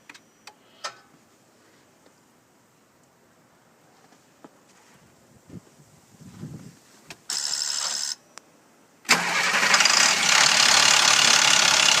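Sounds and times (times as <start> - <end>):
diesel engine cranking: 9.1 - 12.0
diesel engine running: 9.1 - 12.0.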